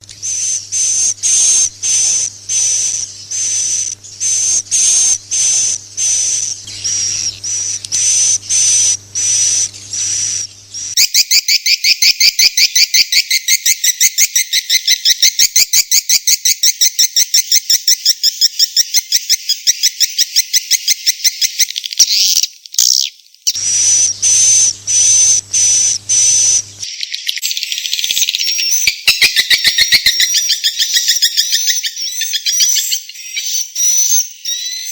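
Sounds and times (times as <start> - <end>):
low steady hum: 0.0 - 11.0, 23.6 - 26.8
fast buzzing trill: 0.0 - 11.2, 23.6 - 26.8.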